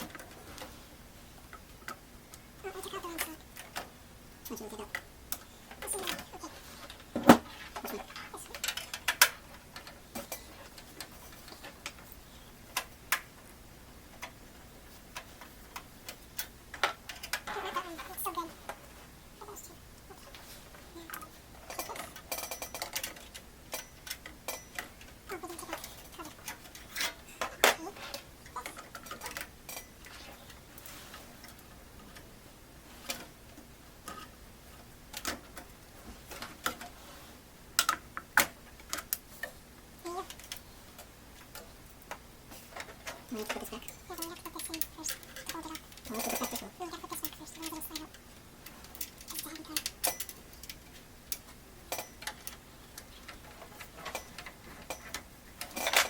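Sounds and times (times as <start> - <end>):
computer case parts clicking: 35.1 - 37.0, 37.8 - 56.0.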